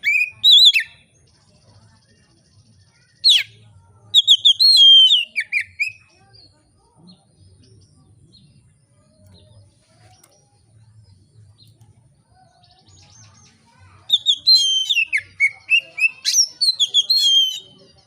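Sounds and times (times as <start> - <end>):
bird singing whistled notes: 0.0 - 1.2, 3.0 - 6.5, 12.7 - 18.0.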